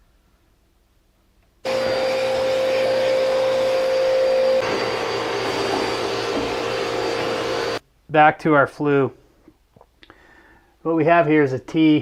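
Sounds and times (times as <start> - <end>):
electric motor whining: 1.7 - 7.8.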